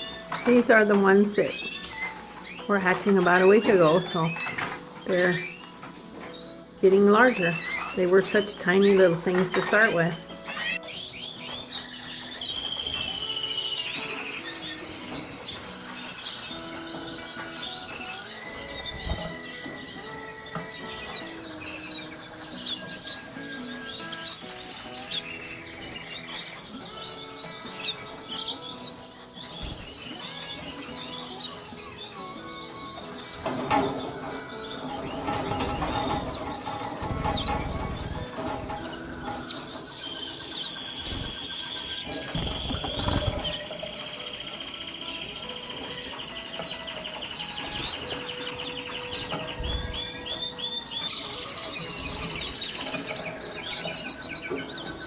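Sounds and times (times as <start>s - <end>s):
background music: 0.0s - 55.0s
canaries chirping: 0.0s - 55.0s.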